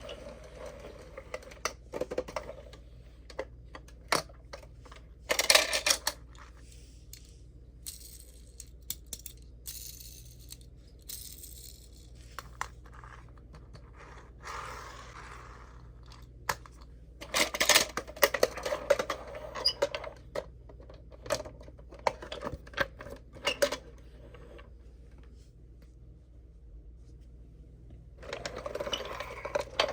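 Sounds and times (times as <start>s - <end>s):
toy cars clicking and clattering: 7.1s - 13.2s.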